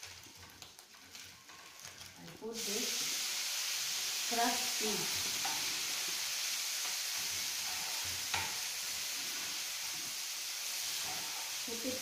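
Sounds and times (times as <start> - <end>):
peas sizzling in a frying pan: 0.0 - 12.0
spoon scraping a pan: 5.1 - 11.9.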